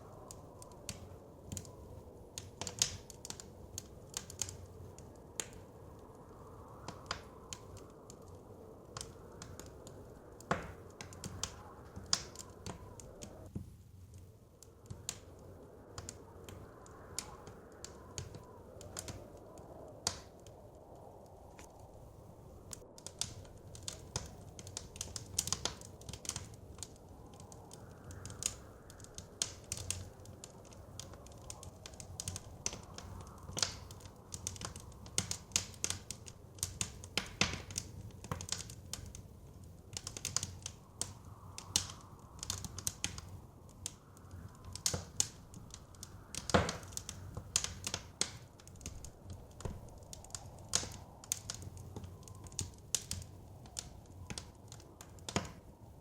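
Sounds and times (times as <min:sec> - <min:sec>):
blizzard wind rushing: 0:00.0 - 0:56.0
wood fire crackling: 0:00.0 - 0:56.0.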